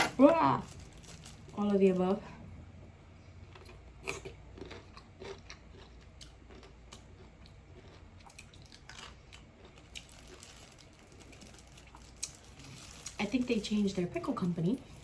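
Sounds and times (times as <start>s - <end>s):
person chewing pickle: 3.4s - 10.5s.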